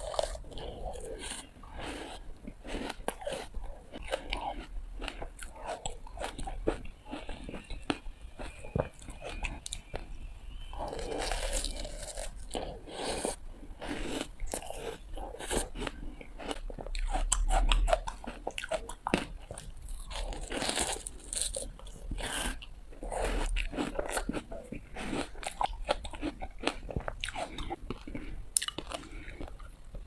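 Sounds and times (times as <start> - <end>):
ice crunched between teeth: 10.8 - 12.5.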